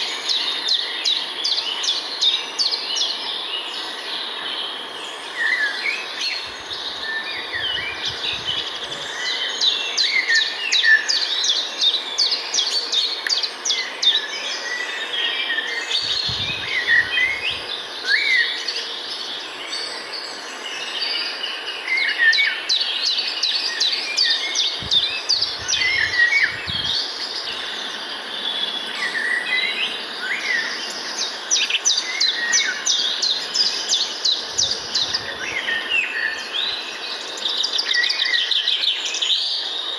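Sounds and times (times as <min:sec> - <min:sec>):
birds chirping and trilling: 0:00.0 - 0:39.9
outdoor hiss: 0:15.8 - 0:19.4.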